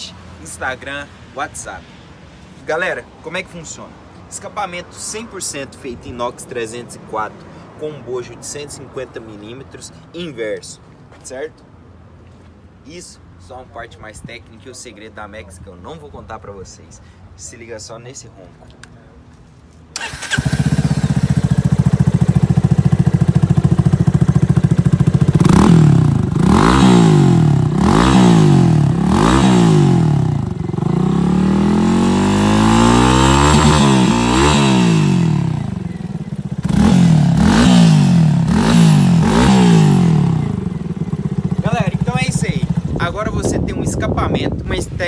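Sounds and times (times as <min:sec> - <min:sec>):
motorcycle engine idling and revving: 0:20.0 - 0:44.8.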